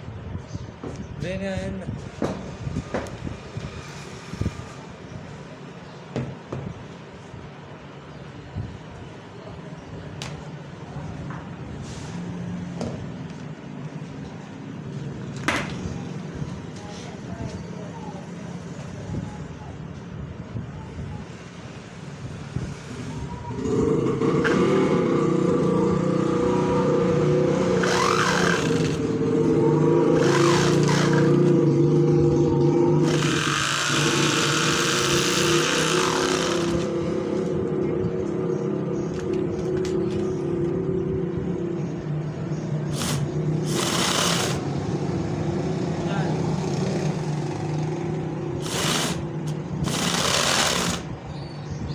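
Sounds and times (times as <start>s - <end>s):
small electric motor running: 27.5s - 29.2s, 30.2s - 31.5s, 32.9s - 37.4s, 42.9s - 44.7s, 48.6s - 51.1s.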